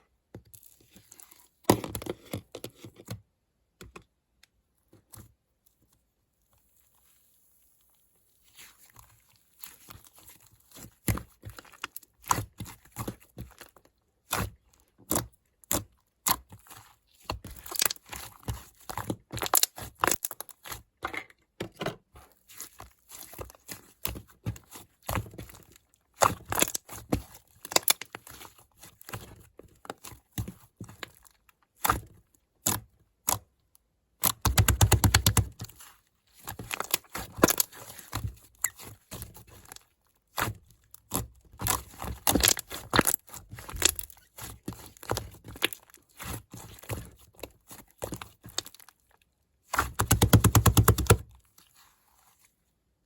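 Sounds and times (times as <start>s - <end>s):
clay figure cracking and crumbling: 27.6s - 28.1s, 40.5s - 44.2s.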